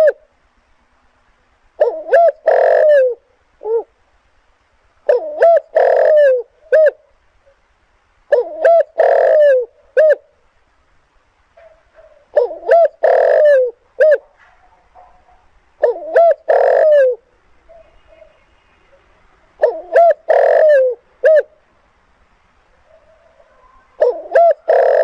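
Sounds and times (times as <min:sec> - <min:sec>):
dove cooing: 0:00.0 - 0:00.3, 0:01.8 - 0:04.0, 0:05.0 - 0:07.6, 0:08.3 - 0:10.3, 0:11.6 - 0:21.6, 0:22.7 - 0:25.0.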